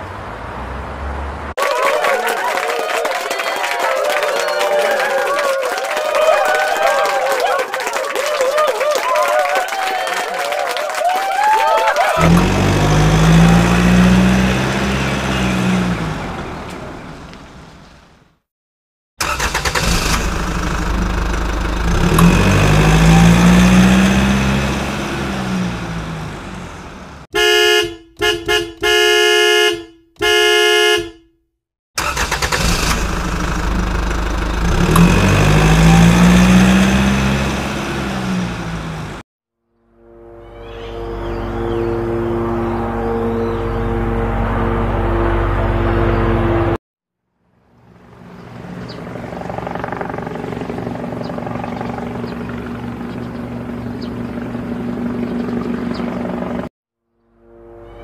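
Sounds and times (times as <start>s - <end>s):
vehicle engine passing by: 0.0s - 1.6s, 12.1s - 18.1s, 19.2s - 27.3s, 32.1s - 39.2s, 47.7s - 56.7s
horn honking: 12.1s - 16.6s, 21.8s - 25.8s, 27.3s - 31.4s, 34.6s - 38.6s, 39.9s - 46.8s.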